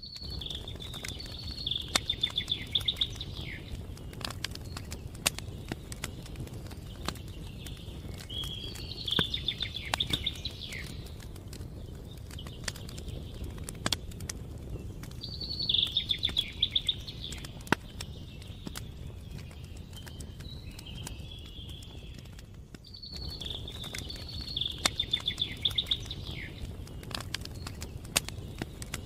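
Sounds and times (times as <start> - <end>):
campfire crackling and popping: 0.0 - 29.0
songbird trilling: 0.1 - 3.8, 7.6 - 11.0, 15.2 - 18.7, 22.9 - 26.9.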